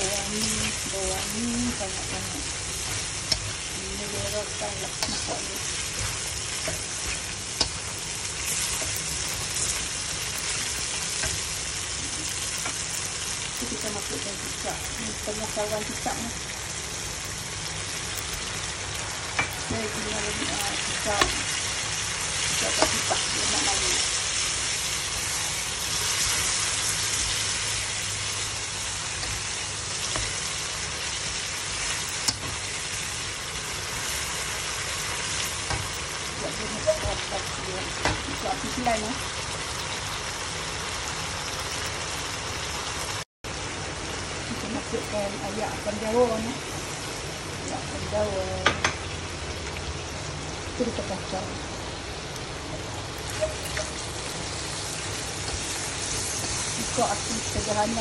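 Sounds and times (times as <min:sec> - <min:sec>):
meat sizzling in a wok: 0:00.0 - 0:58.0
metal spatula clicking on pan: 0:32.0 - 0:32.5.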